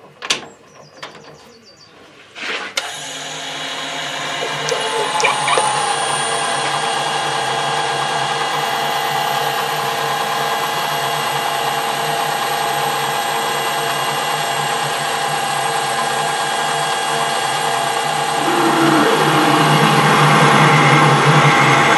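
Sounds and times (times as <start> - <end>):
machine tool motor humming: 2.9 - 11.8, 12.5 - 21.9.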